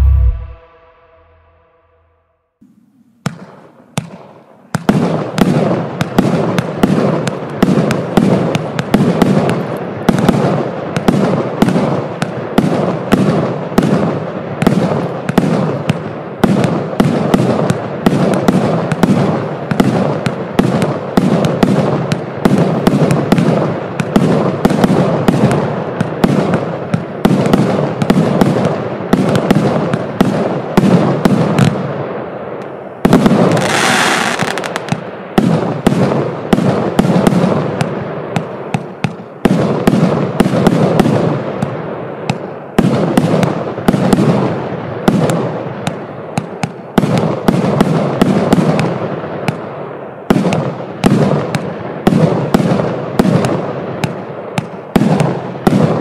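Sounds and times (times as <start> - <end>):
fireworks launch thumps and bursts: 3.2 - 14.0, 32.6 - 44.4, 50.3 - 56.0
fireworks hissing and crackling: 32.6 - 49.6.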